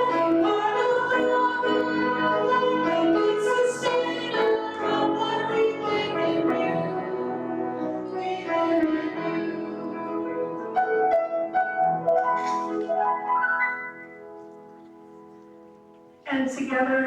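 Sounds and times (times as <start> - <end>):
people singing a hymn: 0.0 - 10.6
piano: 0.0 - 17.0.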